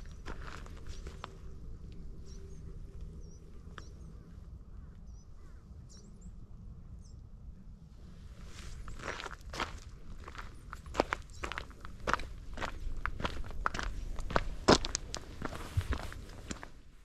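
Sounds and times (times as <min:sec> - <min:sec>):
footsteps on gravel: 0:00.0 - 0:01.4, 0:08.4 - 0:16.8
low steady rumble: 0:00.0 - 0:17.0.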